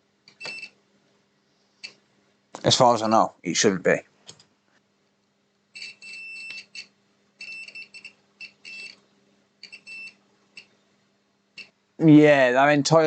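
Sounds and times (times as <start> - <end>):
multimeter buzzer beeping: 0.4 - 0.8, 5.7 - 9.0, 9.6 - 10.7.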